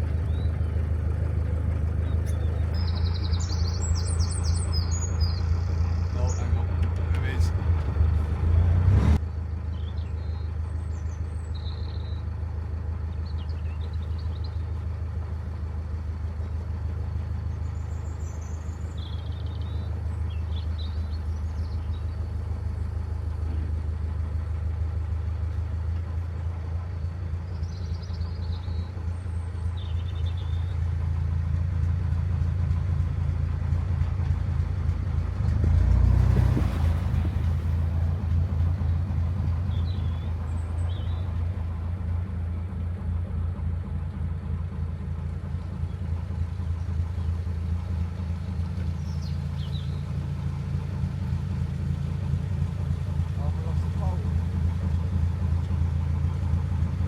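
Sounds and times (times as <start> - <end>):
small birds chirping: 0.0 - 8.4, 9.7 - 12.3, 13.1 - 14.9, 16.3 - 23.6, 26.2 - 30.9, 37.2 - 41.7, 45.3 - 57.0
diesel engine low thrum: 0.0 - 57.0.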